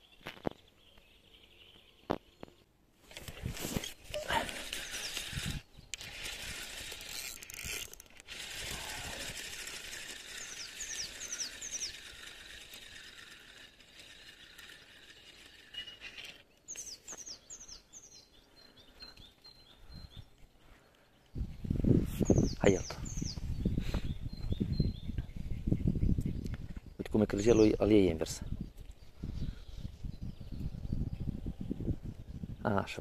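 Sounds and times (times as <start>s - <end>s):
songbird singing: 0.0s - 2.8s, 3.4s - 6.2s, 8.7s - 33.0s
steady outdoor hiss: 0.0s - 19.4s.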